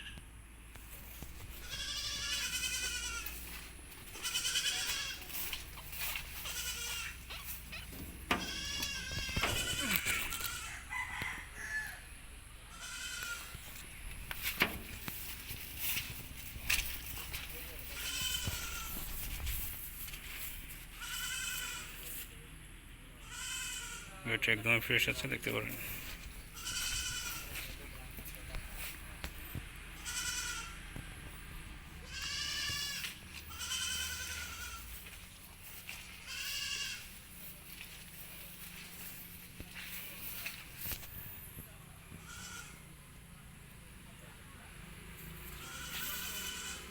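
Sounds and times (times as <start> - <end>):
goat bleating: 1.5 - 12.0, 12.7 - 13.9, 17.0 - 19.8, 20.8 - 22.2, 23.2 - 24.2, 25.6 - 27.8, 29.9 - 31.0, 31.9 - 40.7, 42.2 - 42.9, 45.5 - 46.9
faint animal calls: 4.2 - 12.0.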